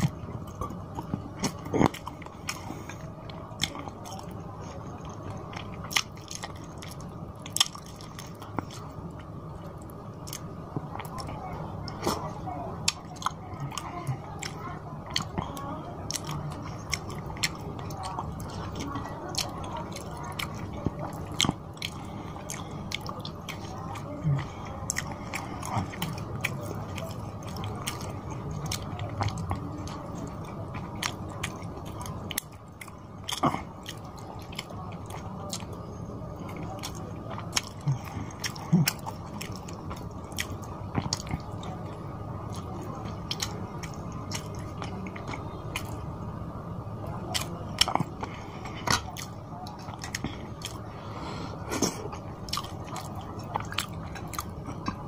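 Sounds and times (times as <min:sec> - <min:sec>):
wet chewing with smacks: 0:00.0 - 0:46.0, 0:47.1 - 0:55.0.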